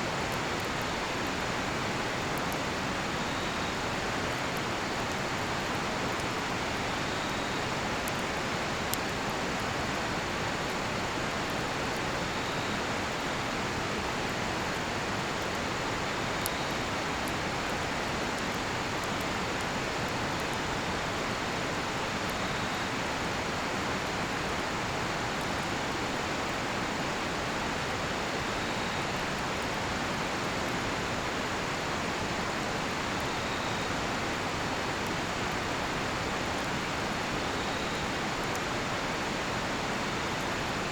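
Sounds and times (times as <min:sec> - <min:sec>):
campfire crackles: 0:00.0 - 0:40.9
faint high insect chirps: 0:33.2 - 0:34.0, 0:37.4 - 0:38.2.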